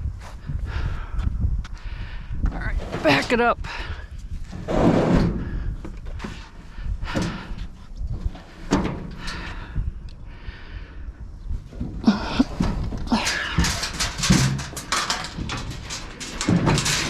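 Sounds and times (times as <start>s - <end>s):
hard objects knocking and clunking: 11.7s - 17.0s.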